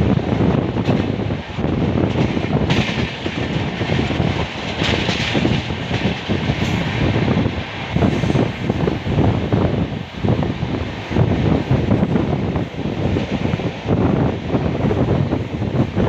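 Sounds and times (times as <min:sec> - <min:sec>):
train wheels rumbling and rattling: 0:00.0 - 0:16.0
hiss: 0:08.0 - 0:08.7.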